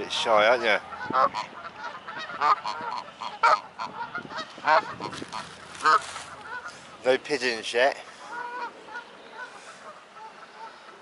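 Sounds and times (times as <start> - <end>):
geese honking: 0.0 - 11.0.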